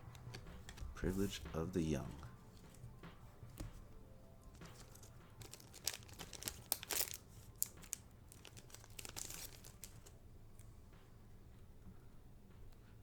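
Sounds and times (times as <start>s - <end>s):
foil wrapper crinkling and tearing: 4.5s - 10.2s.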